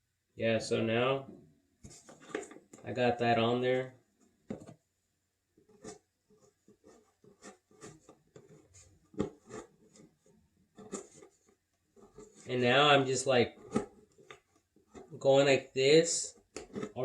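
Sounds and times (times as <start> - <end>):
scratching and rubbing on paper: 5.6 - 12.6.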